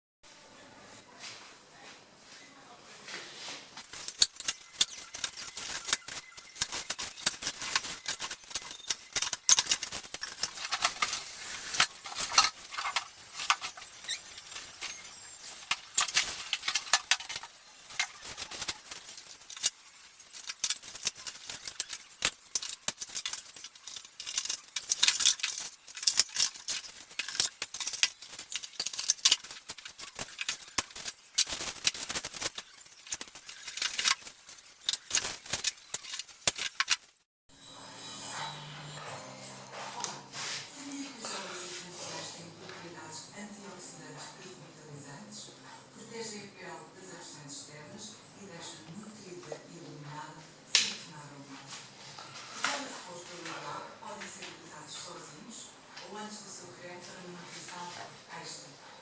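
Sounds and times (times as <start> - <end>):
packaging crinkling and rattling: 3.8 - 37.2.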